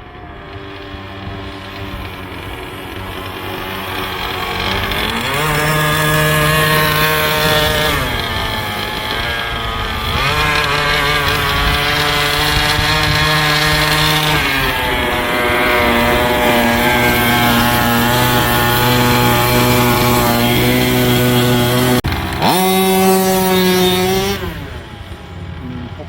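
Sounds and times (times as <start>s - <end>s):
rc truck engine running: 0.0s - 26.0s.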